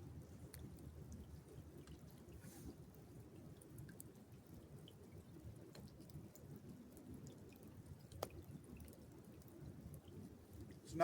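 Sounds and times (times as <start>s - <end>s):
soft ticks: 0.5s - 0.9s.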